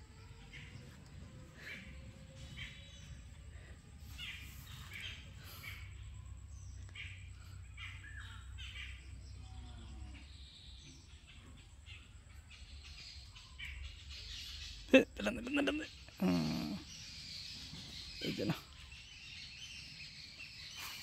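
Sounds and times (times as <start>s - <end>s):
birds calling: 0.0s - 21.0s.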